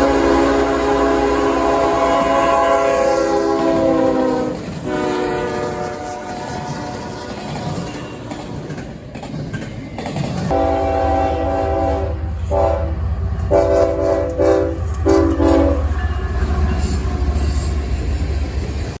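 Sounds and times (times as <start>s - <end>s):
locomotive air horn blasts: 0.0s - 7.3s, 10.5s - 17.6s
freight train rumble: 0.0s - 19.0s.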